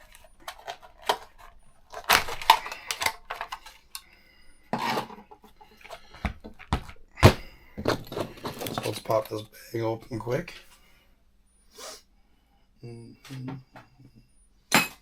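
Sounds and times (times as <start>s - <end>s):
plastic packaging rustling: 0.0s - 4.0s, 5.8s - 9.4s
small hard parts clicking: 0.0s - 4.1s.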